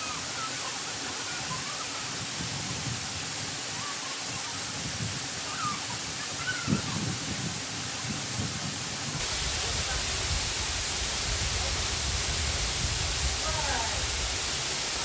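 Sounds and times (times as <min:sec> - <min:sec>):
waterfall rushing: 0:09.2 - 0:15.0.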